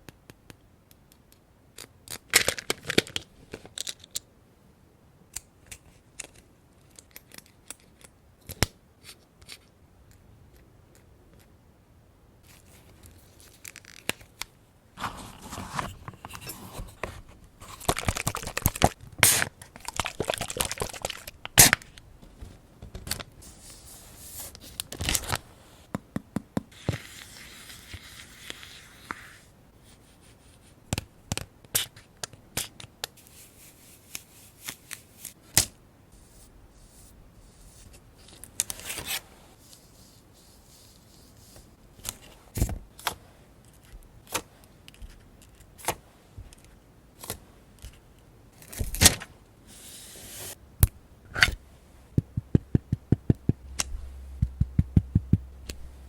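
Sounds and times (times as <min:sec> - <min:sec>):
paper rustling and tearing: 0:15.0 - 0:21.8
sharp taps and clicks: 0:52.2 - 0:55.9.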